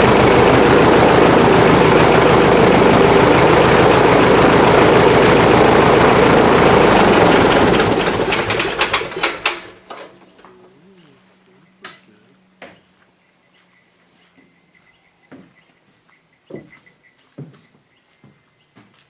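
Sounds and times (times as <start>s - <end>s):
aircraft piston engine: 0.0s - 10.2s.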